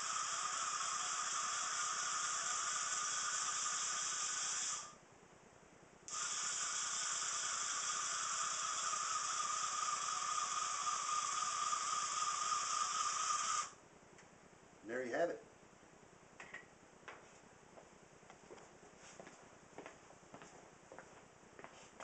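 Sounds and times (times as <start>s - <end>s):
electric motors whining: 6.1s - 13.8s.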